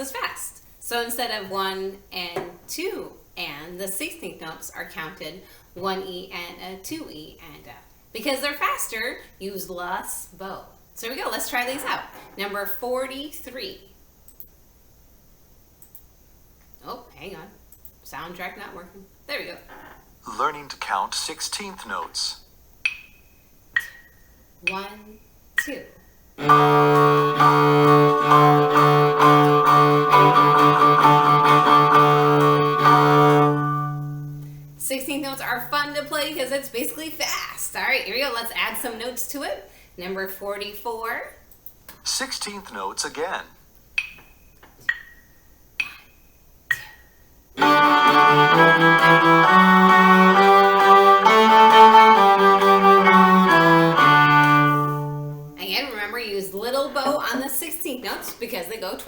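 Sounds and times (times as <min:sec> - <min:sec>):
cello bowing short strokes: 0:26.4 - 0:34.8, 0:47.6 - 0:55.6.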